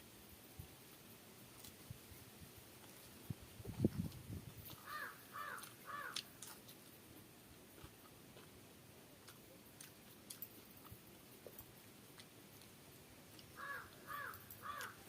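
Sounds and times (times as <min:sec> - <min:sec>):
person chewing rice: 0:04.7 - 0:15.0
crow cawing: 0:04.8 - 0:06.3, 0:13.6 - 0:15.0.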